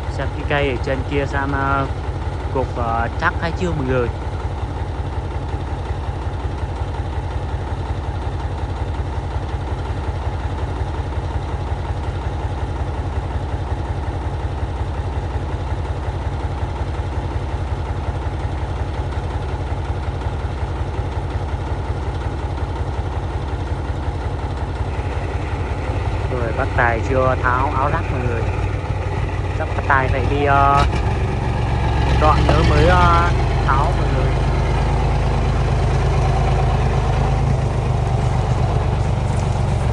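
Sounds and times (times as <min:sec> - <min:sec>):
truck diesel engine idling: 0:00.0 - 0:39.9.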